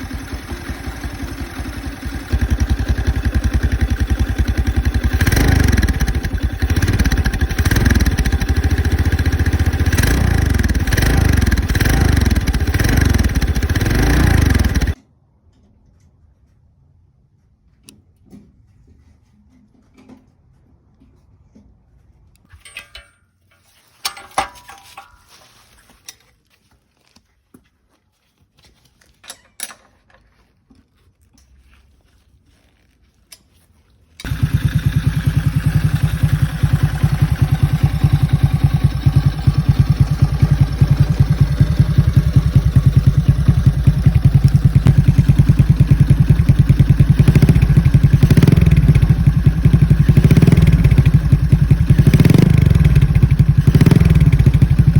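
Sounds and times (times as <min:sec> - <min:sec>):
motorcycle engine idling: 0:00.0 - 0:15.0, 0:34.2 - 0:54.9.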